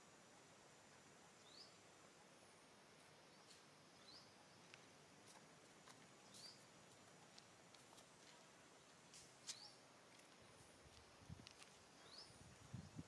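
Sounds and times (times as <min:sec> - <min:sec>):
faint outdoor hiss: 0:00.0 - 0:13.0
faint ticks: 0:09.1 - 0:11.8.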